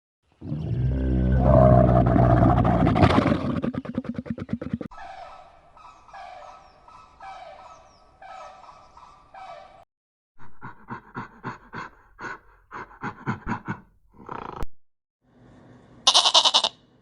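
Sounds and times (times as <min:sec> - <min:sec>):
fast sharp animal calls: 0:16.1 - 0:16.7
short animal calls: 0:16.1 - 0:16.8.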